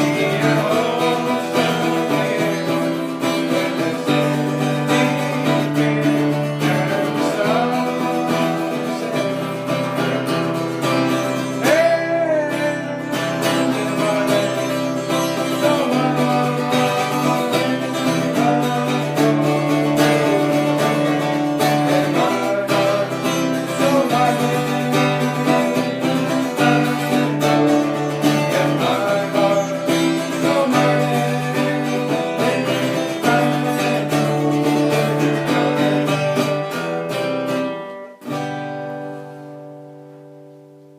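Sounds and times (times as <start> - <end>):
acoustic guitar music: 0.0 - 40.9.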